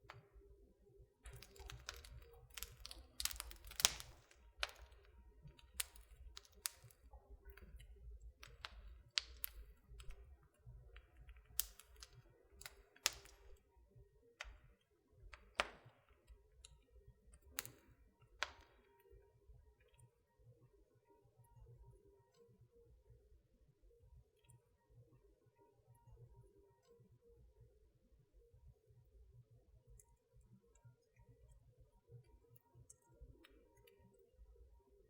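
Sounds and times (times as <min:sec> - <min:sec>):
wood fire crackling: 0:01.2 - 0:13.8, 0:14.4 - 0:18.9.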